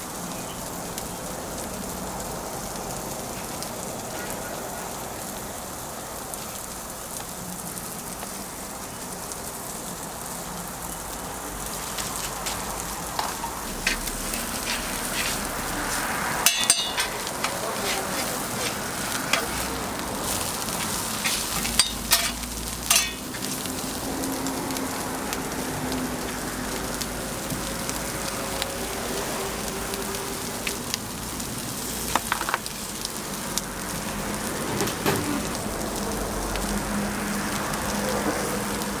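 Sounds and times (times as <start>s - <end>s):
food sizzling on a griddle: 0.0s - 39.0s
utensils clattering on metal: 11.8s - 23.7s, 34.5s - 35.6s.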